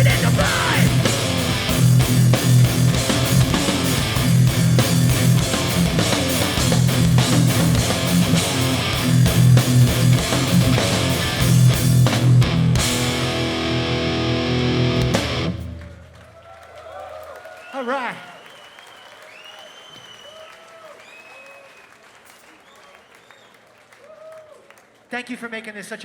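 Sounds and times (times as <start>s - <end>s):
punk band playing live: 0.0s - 16.1s
held guitar chord ringing: 12.4s - 15.8s.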